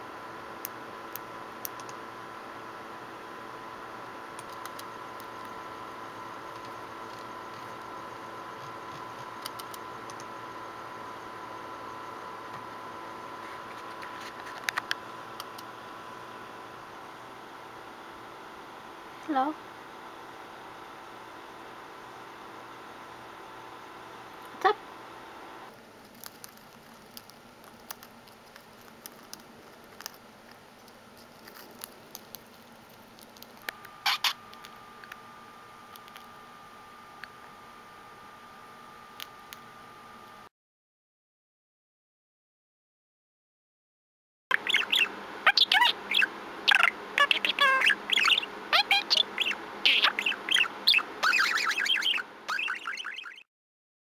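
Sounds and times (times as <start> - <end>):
clicks: 0.6 - 2.0, 8.6 - 10.3
budgerigar chirps: 34.0 - 34.4, 44.5 - 53.4.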